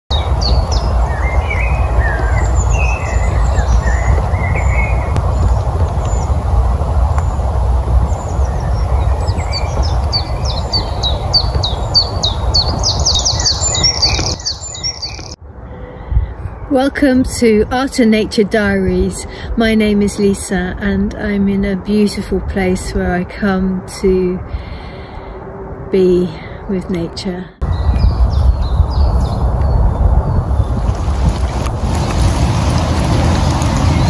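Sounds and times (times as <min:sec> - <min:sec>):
birds chirping and warbling: 0:00.1 - 0:06.4, 0:07.2 - 0:16.6, 0:26.5 - 0:32.3
steady low rumble: 0:00.1 - 0:34.0.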